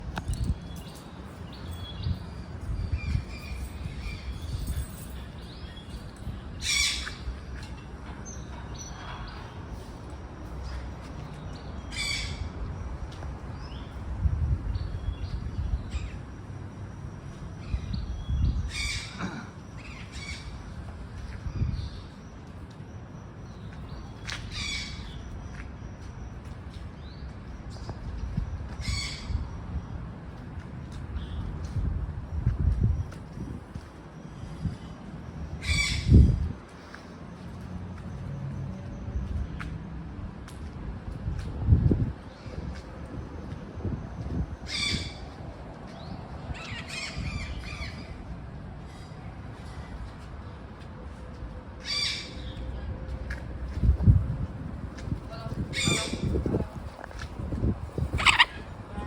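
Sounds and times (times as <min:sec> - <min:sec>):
wind rumble on microphone: 0:00.0 - 0:22.7, 0:23.5 - 0:59.0
macaws squawking: 0:58.1 - 0:58.7.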